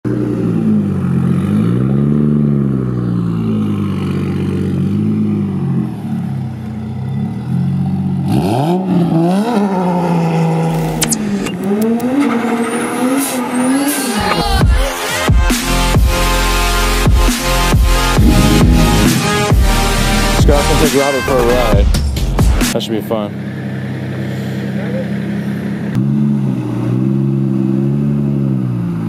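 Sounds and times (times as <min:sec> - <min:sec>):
car engine revving: 0:00.1 - 0:14.4, 0:15.9 - 0:22.4.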